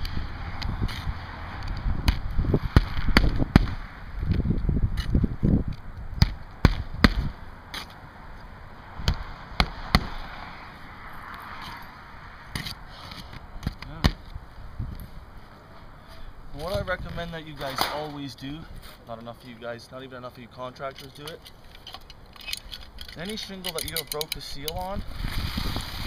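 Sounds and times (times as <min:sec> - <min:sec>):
wind rumble on microphone: 0:00.0 - 0:07.6, 0:14.2 - 0:15.4, 0:16.5 - 0:17.5, 0:24.4 - 0:26.0.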